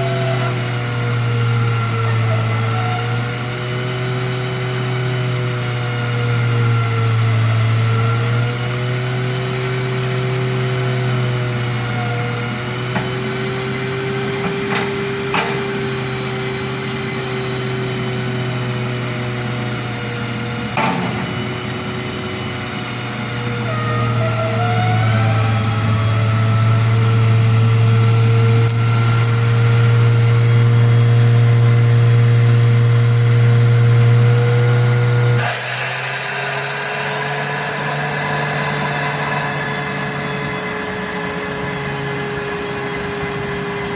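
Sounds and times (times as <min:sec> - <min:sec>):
machine engine running: 0:04.8 - 0:43.9
sharp knocks: 0:20.8 - 0:22.2.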